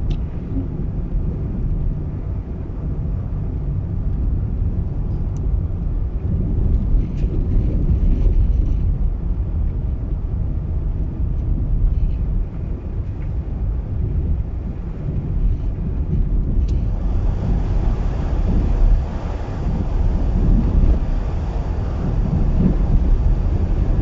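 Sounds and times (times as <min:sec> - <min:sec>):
car road and engine rumble: 0:00.0 - 0:24.0
wind hiss: 0:16.6 - 0:24.0.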